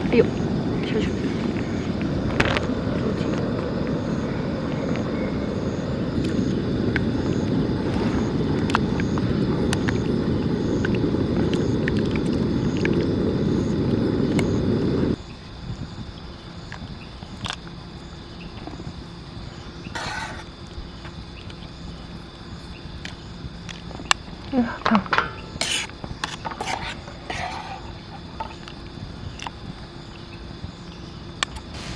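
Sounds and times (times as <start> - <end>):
gas stove burner roaring: 0.0 - 15.2, 31.7 - 31.9.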